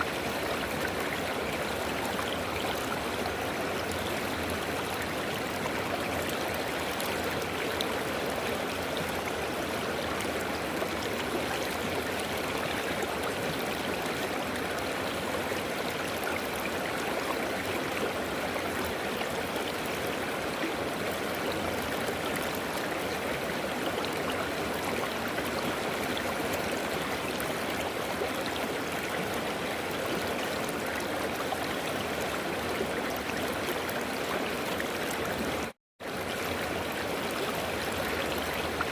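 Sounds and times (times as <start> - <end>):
river water flowing over rocks: 0.0 - 38.9.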